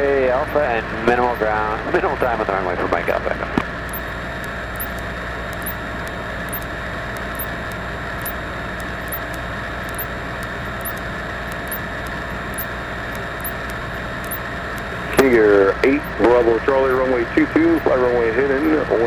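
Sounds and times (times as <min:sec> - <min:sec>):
airplane engine and propeller drone: 0:00.0 - 0:19.0
faint high chirps: 0:04.8 - 0:07.6, 0:08.2 - 0:11.0, 0:11.6 - 0:15.4.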